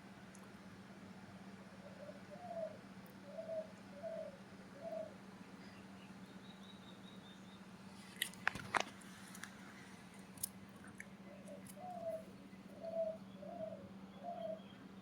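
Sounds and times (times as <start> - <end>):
faint steady hum: 0.0 - 15.0
dove cooing: 1.6 - 5.3, 11.2 - 14.8.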